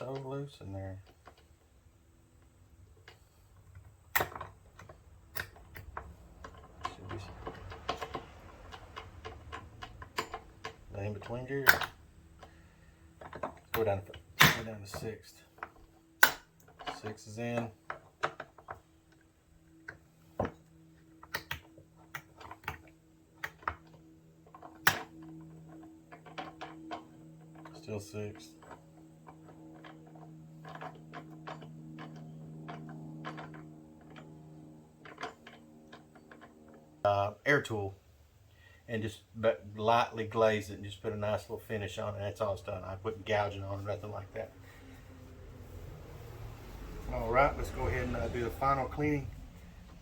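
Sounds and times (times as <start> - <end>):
metallic gear clicks and knocks: 19.8 - 37.0.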